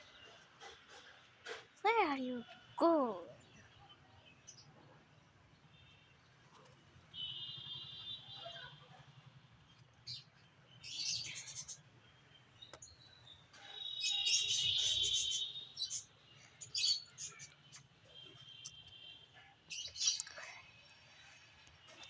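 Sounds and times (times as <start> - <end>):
bird chirping and twittering: 10.0 - 19.1, 19.7 - 20.5.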